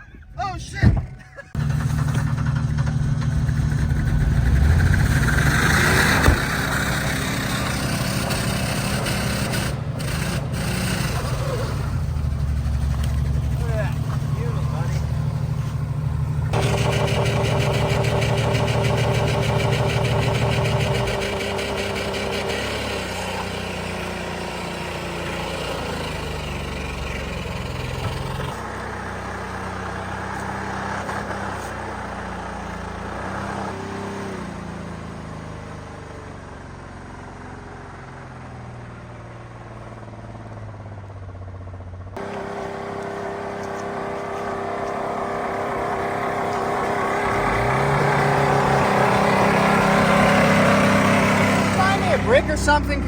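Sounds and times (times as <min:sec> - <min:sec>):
car engine revving: 0:01.5 - 0:31.8, 0:42.1 - 0:53.0.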